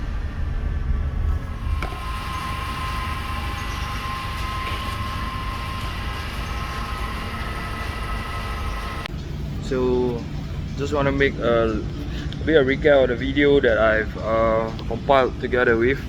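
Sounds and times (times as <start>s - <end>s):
high whine: 0.0s - 12.0s
car engine low rumble: 0.0s - 12.9s.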